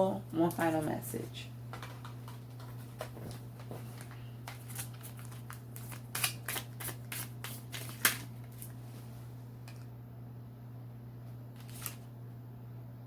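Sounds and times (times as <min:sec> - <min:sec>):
steady low hum: 0:00.0 - 0:13.0
cards being shuffled: 0:01.7 - 0:08.8, 0:11.6 - 0:12.1.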